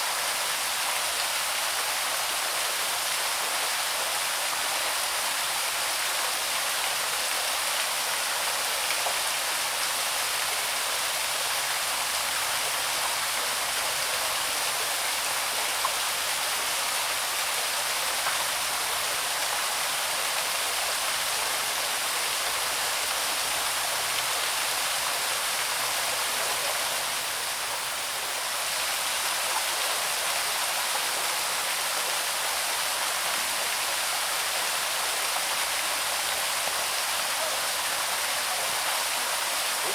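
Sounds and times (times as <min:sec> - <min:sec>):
small waterfall pouring and splashing: 0:00.0 - 0:39.9.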